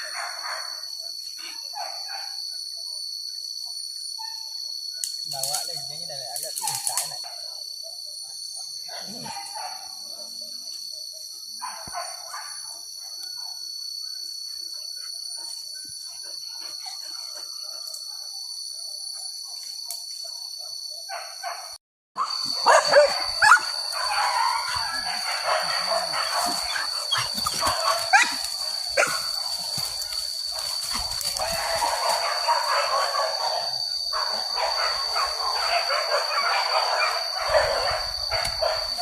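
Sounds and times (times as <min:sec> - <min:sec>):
dogs barking and yelping: 0:00.0 - 0:02.5, 0:07.4 - 0:10.5, 0:19.1 - 0:39.0.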